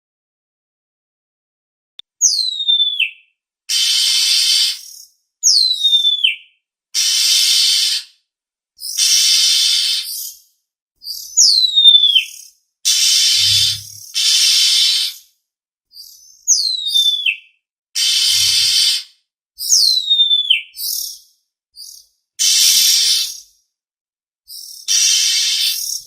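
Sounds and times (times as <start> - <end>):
harsh rasping bird calls: 12.9 - 15.2, 18.0 - 19.1, 22.4 - 23.4, 24.5 - 26.0
whistled note sliding downward: 13.2 - 14.0.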